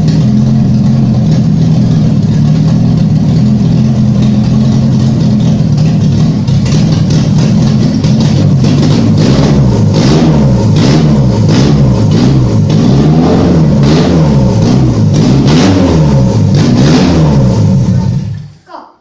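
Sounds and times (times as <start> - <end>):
car engine revving: 0.0 - 18.6.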